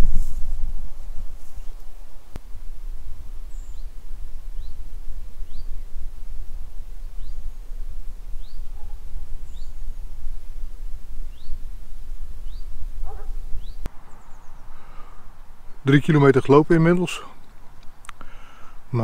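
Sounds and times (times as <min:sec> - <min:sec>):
wind rumble on microphone: 0:00.0 - 0:16.0
small bird chirping: 0:03.3 - 0:06.0, 0:06.9 - 0:16.3.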